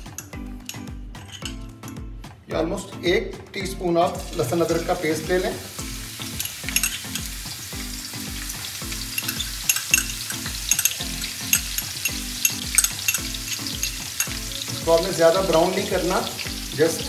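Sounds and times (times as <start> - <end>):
paste sizzling in hot fat: 4.0 - 17.0
spatula on iron pan: 5.9 - 16.8.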